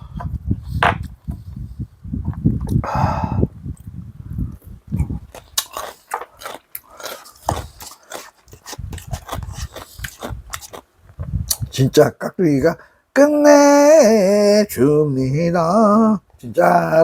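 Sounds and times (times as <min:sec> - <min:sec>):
chewing and crunching: 0:04.5 - 0:10.9.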